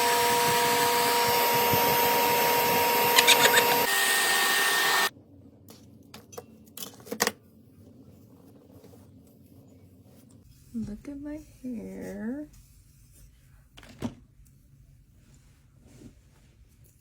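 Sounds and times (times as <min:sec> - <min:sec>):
hair dryer rushing suction: 0:00.0 - 0:05.1.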